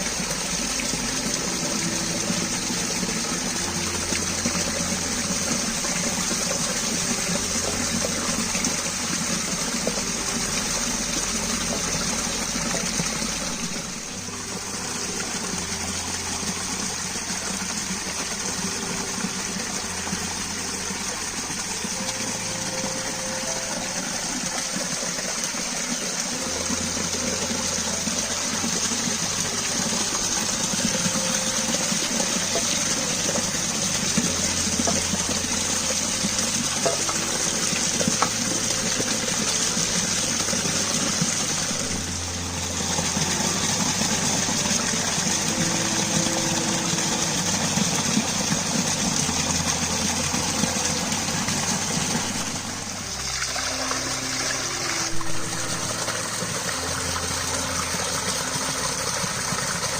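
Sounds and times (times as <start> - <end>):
rushing gushing water: 0.0 - 59.9.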